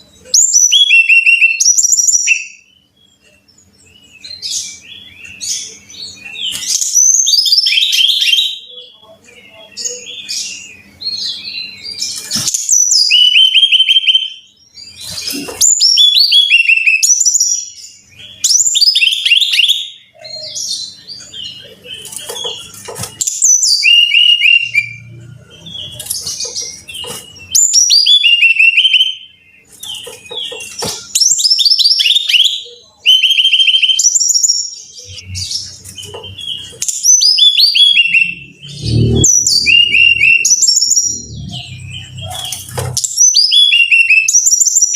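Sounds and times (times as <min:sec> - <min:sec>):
bird singing whistles and trills: 0:00.0 - 0:44.9.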